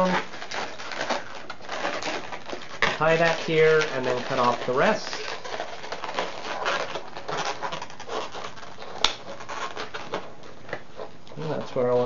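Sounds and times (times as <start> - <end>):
balloons rubbing under fingers: 0.0 - 12.0
sharp balloon snap: 8.9 - 9.4.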